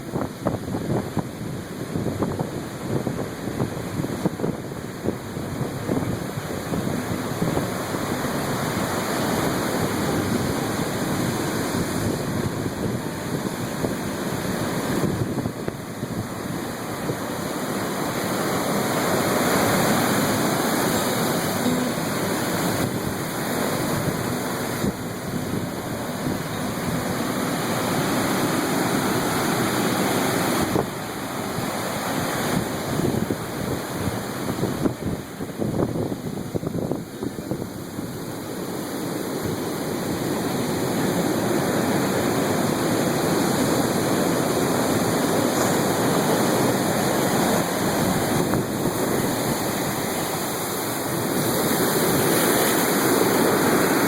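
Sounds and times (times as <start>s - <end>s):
ocean surf breaking: 0.0s - 54.0s
wind buffeting microphone: 0.0s - 54.0s.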